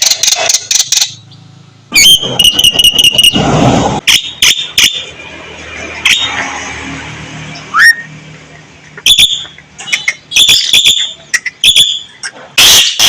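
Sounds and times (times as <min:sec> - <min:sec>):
myna bird singing: 0:08.9 - 0:13.0.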